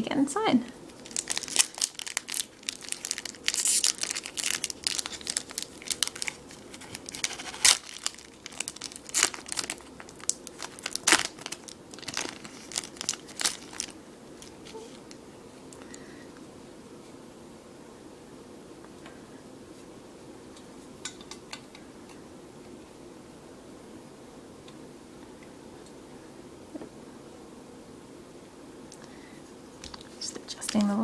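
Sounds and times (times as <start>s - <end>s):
foil wrapper tearing and crinkling: 0.9s - 15.2s.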